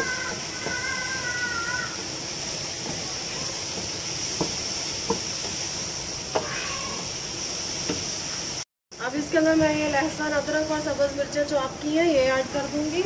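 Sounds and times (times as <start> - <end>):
wooden spatula knocking on pot: 0.0 - 1.3, 3.7 - 5.6
vegetables sizzling in hot oil: 0.0 - 13.0.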